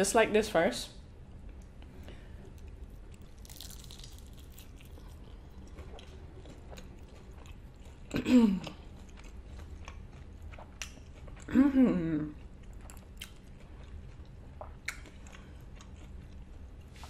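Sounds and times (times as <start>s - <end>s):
wet chewing with mouth clicks: 2.5s - 11.5s, 12.4s - 17.0s
crunchy bite into fried taco: 3.1s - 7.6s.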